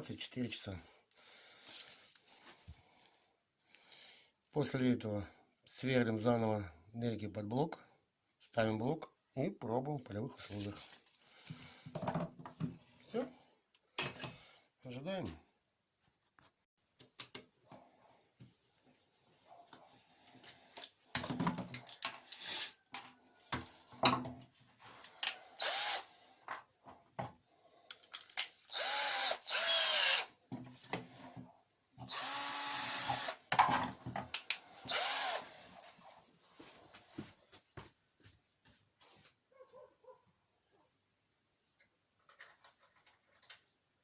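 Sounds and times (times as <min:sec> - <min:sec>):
electric drill drilling metal: 0:25.6 - 0:26.1, 0:28.7 - 0:30.3, 0:32.1 - 0:33.5, 0:34.8 - 0:35.5.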